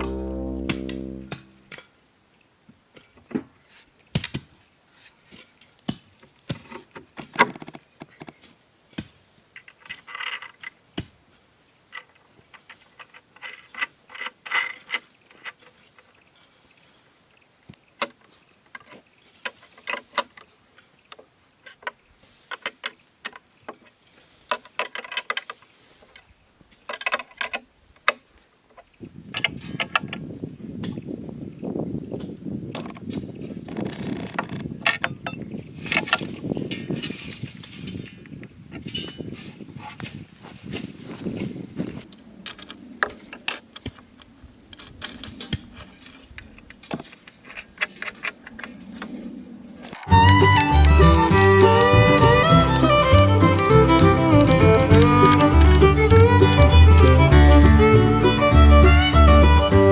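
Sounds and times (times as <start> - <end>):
steady louder sound: 0.0 - 1.6
tools clicking and clinking: 50.0 - 58.8
scraping: 50.0 - 59.1.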